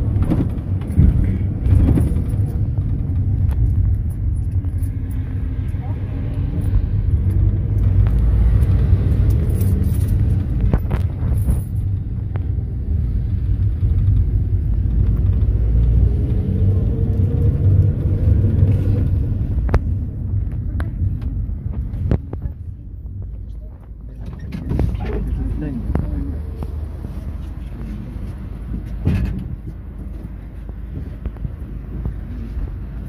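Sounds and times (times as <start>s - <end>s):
rattles and knocks: 0.0s - 5.5s, 27.4s - 32.2s
vehicle engine and road rumble: 0.0s - 33.0s.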